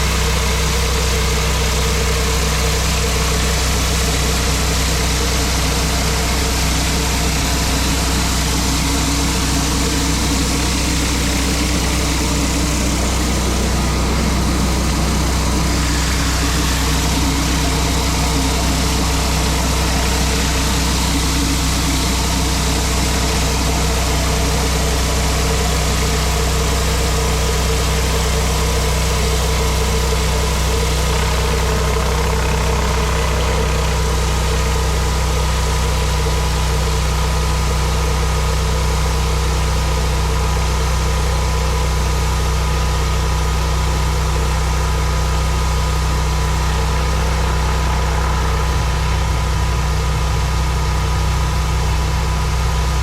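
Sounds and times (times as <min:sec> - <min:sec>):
pressure washer engine hum: 0:00.0 - 0:53.0
high-pressure water spraying on concrete: 0:03.0 - 0:34.6.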